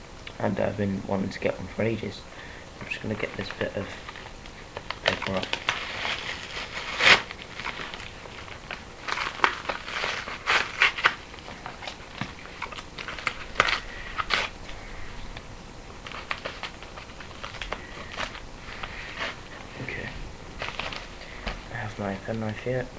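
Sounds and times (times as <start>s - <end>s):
paper tearing and crinkling: 3.0s - 15.1s, 16.0s - 21.9s.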